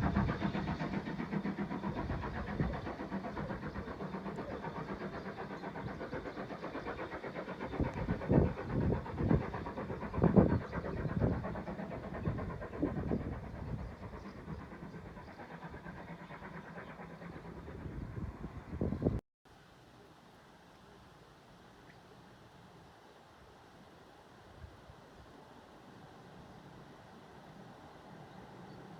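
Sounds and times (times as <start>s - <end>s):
locomotive engine hum: 0.0s - 19.2s.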